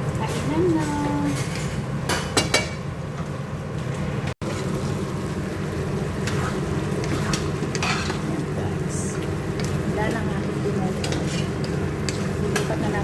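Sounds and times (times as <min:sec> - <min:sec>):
stir-fry rumbling in a pan: 0:00.0 - 0:13.0
utensil clicking against pan: 0:11.0 - 0:12.9.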